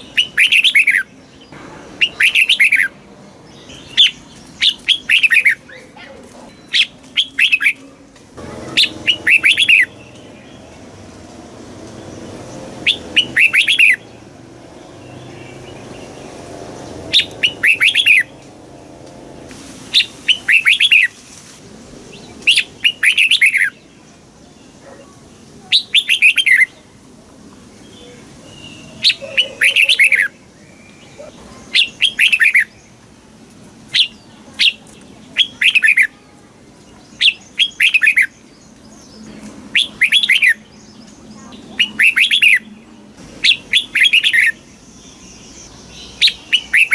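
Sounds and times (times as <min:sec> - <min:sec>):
bulbul singing warbling phrases: 0:00.0 - 0:10.9, 0:12.4 - 0:18.4, 0:27.9 - 0:32.9, 0:34.0 - 0:46.9.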